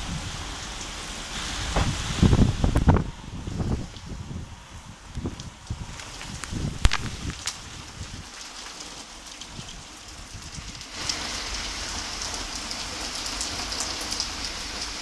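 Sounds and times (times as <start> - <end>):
heavy rain hissing: 0.0 - 15.0
raindrop ticks: 5.1 - 15.0.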